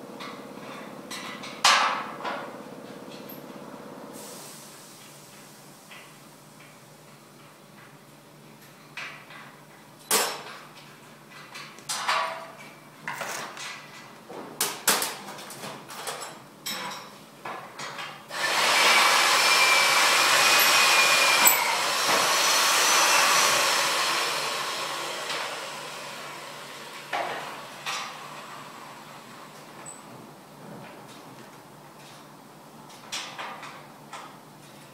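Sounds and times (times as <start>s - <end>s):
workshop tool rushing noise: 18.3s - 28.8s.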